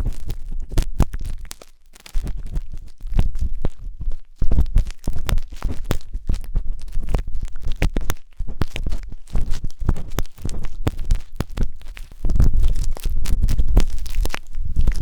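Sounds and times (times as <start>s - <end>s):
skewer scraping microphone: 2.2s - 15.0s.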